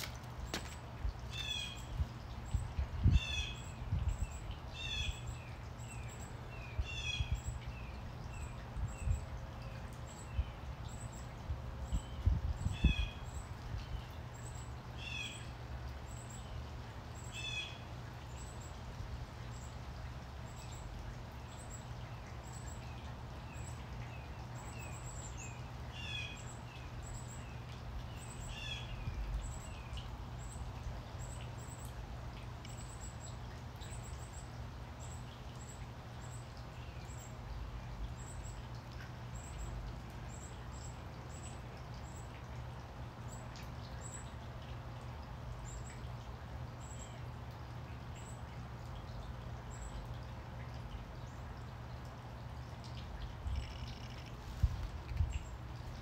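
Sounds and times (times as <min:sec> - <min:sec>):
lower bird calls: 0:01.3 - 0:05.3, 0:53.5 - 0:54.6.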